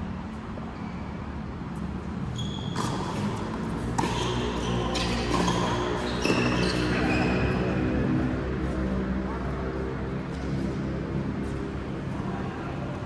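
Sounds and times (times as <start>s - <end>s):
shoes squeaking on court floor: 0.7s - 9.0s
racket hitting ball: 2.8s - 6.8s.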